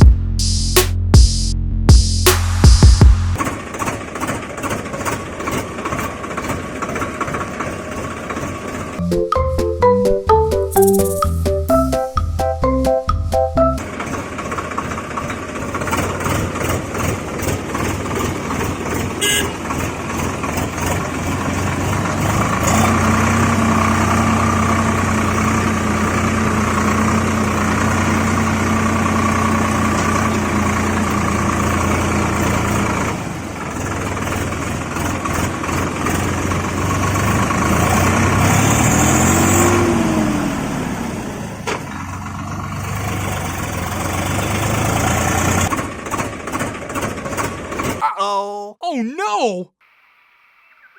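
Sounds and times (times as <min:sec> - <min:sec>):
rising and falling tone: 0:09.0 - 0:13.9
vehicle engine running: 0:13.1 - 0:47.9
held horn-like tone: 0:19.2 - 0:19.6.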